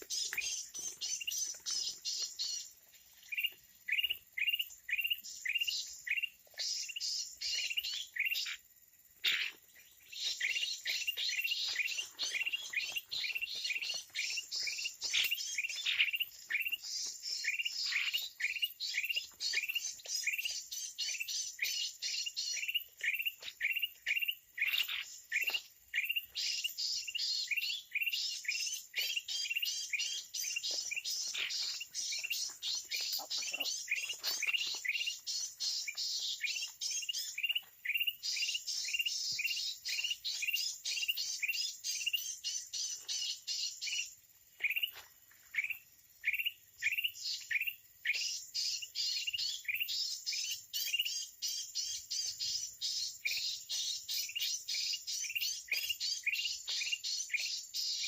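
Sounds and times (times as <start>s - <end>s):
birds chirping rapidly: 0.0s - 58.0s.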